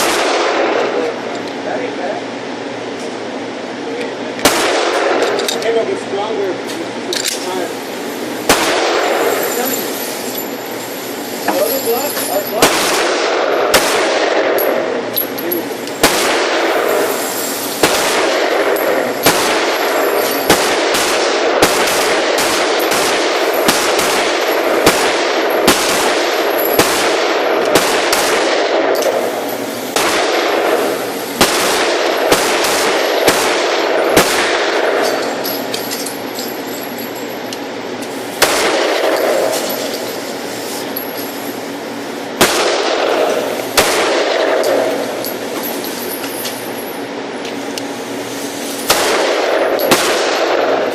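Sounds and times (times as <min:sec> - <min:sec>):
pistol shots: 0:00.0 - 0:01.0, 0:04.4 - 0:05.5, 0:08.4 - 0:09.4, 0:12.6 - 0:14.9, 0:16.0 - 0:17.2, 0:17.8 - 0:35.4, 0:38.4 - 0:39.8, 0:42.4 - 0:45.5, 0:48.9 - 0:50.9
steady rushing noise: 0:15.7 - 0:36.3.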